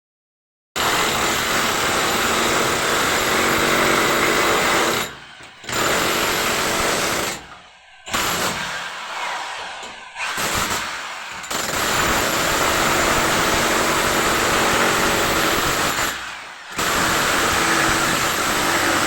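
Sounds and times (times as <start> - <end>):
power tool running: 8.1 - 19.0.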